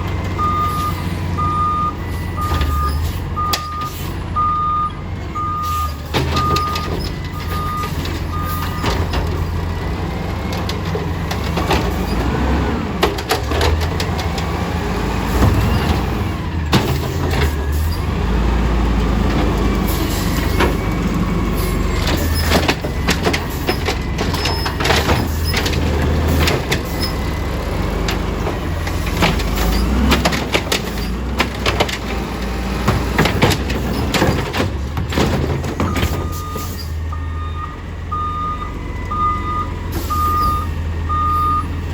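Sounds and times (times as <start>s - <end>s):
garbage truck engine running: 0.0s - 41.9s
reversing beeper: 0.4s - 9.5s, 35.8s - 41.8s
metal clanks and knocks: 28.0s - 36.8s.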